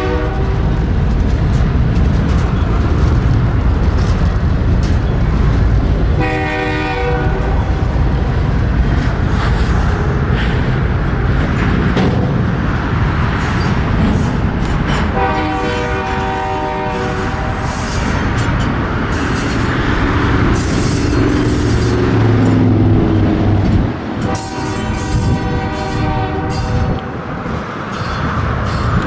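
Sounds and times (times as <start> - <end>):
locomotive air horn blasts: 0.0 - 0.6, 6.2 - 7.6, 15.1 - 18.0, 24.2 - 27.1
low rumble of moving train: 0.0 - 29.0.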